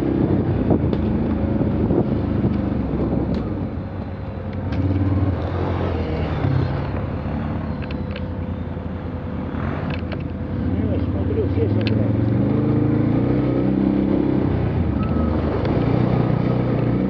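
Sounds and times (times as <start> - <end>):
off-road vehicle engine revving: 4.7 - 8.4, 9.4 - 17.0.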